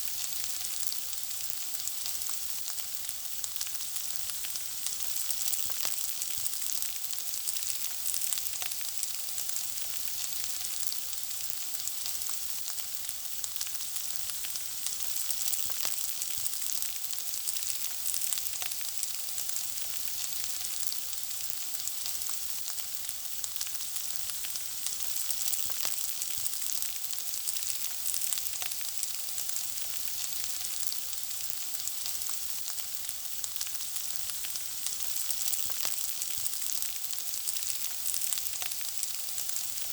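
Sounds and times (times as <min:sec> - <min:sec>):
food frying sizzle: 0:00.0 - 0:39.9.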